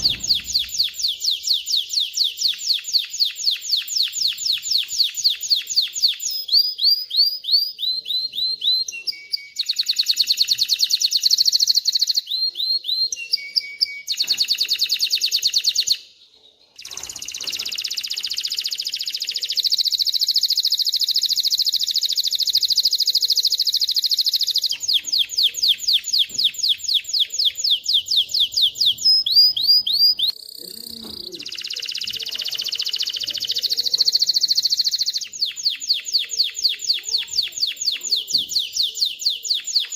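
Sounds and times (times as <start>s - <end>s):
canary singing rapid trills: 16.7s - 39.9s.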